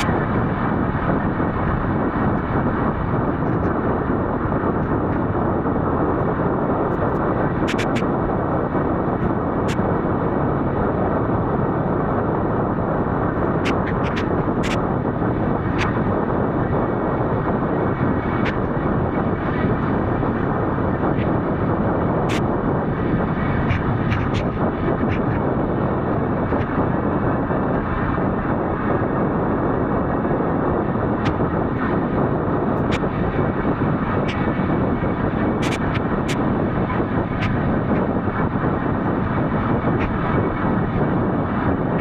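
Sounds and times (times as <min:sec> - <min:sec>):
wind rushing rumble: 0:00.0 - 0:42.0.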